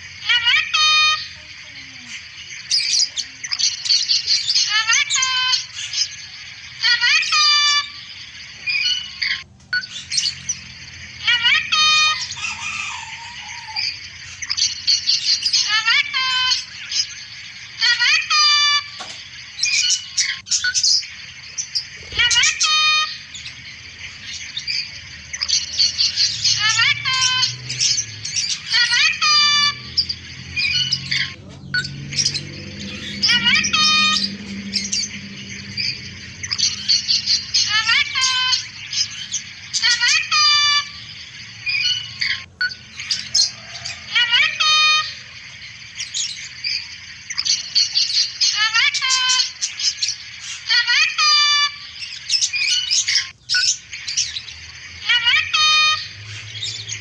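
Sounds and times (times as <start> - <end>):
birds twittering: 0.0 - 57.0
loud bird call: 0.0 - 57.0.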